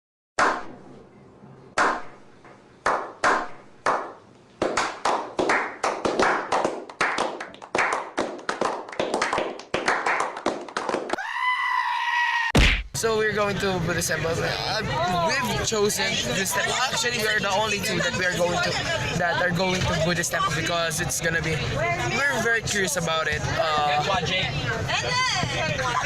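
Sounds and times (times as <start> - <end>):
hand clapping: 2.8 - 11.2.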